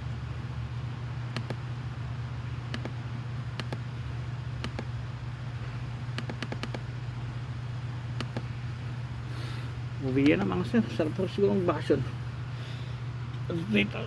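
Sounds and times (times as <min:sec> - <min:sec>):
low machine hum: 0:00.0 - 0:14.0
light sharp clicks: 0:01.3 - 0:01.6, 0:02.7 - 0:03.0, 0:03.6 - 0:03.8, 0:04.6 - 0:04.9, 0:06.1 - 0:06.9, 0:08.2 - 0:08.5.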